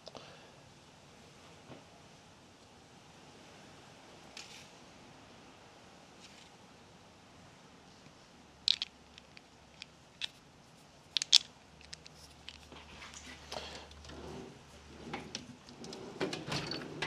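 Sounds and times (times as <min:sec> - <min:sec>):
tools clicking and tapping: 0:11.1 - 0:12.7.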